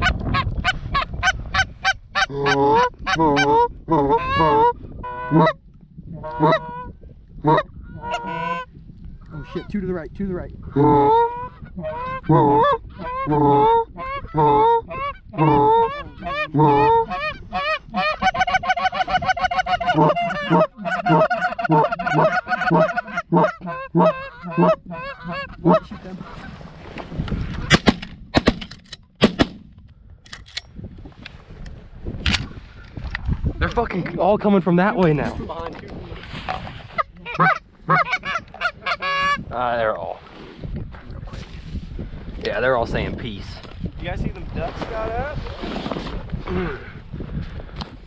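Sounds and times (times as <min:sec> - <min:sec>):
goose clucking: 0:00.0 - 0:05.6, 0:06.2 - 0:08.7, 0:10.7 - 0:26.5, 0:36.9 - 0:39.4
goose honking: 0:06.2 - 0:08.7, 0:10.7 - 0:26.5, 0:36.9 - 0:39.4.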